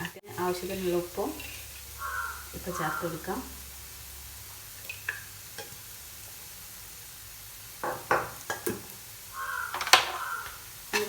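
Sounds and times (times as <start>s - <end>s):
food frying in a pan: 0.0s - 11.0s
utensil knocking against pan: 7.8s - 8.9s.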